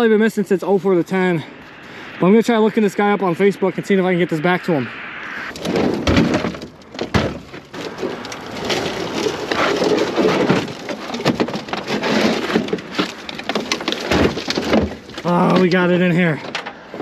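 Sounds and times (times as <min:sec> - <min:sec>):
gear dragged over rough ground: 0:05.5 - 0:16.4.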